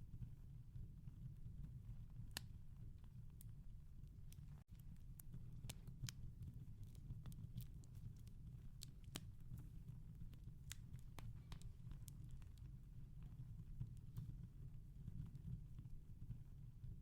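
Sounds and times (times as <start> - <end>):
wood fire crackling: 1.6 - 14.3.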